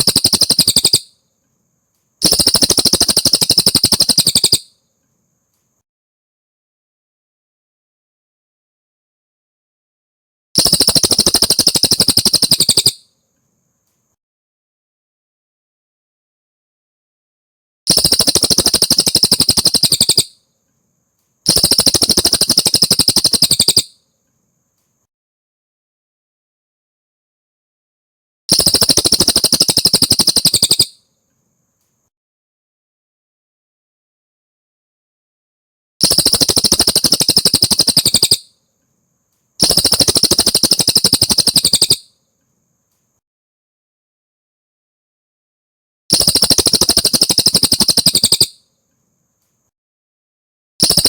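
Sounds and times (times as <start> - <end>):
songbird trilling: 0.0 - 1.1, 2.2 - 4.7, 10.6 - 13.0, 17.9 - 20.4, 21.5 - 23.9, 28.6 - 31.0, 36.0 - 38.5, 39.6 - 42.1, 46.2 - 48.6.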